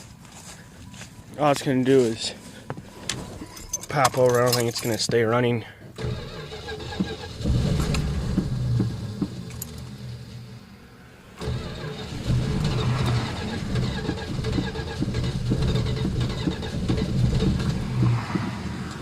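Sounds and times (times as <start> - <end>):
starter cranking: 6.0 - 10.3, 11.4 - 19.0
engine running unevenly: 6.0 - 19.0.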